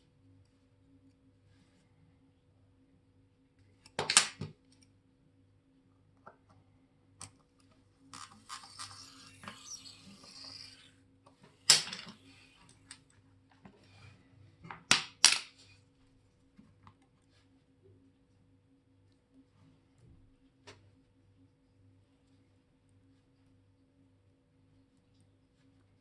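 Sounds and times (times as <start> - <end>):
scratchy rubbing: 8.2 - 10.9.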